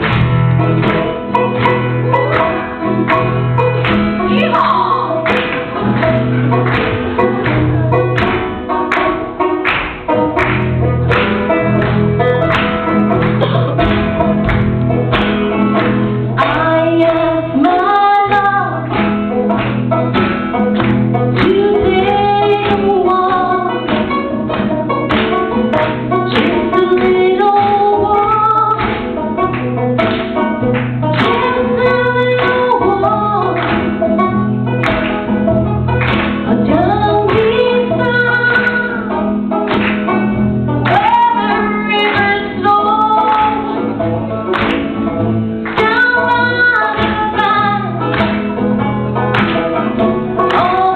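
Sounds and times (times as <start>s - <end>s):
acoustic guitar strumming: 0.0s - 50.9s
person singing: 2.2s - 10.3s, 16.3s - 19.6s, 21.3s - 24.4s, 45.8s - 48.4s, 50.3s - 50.9s.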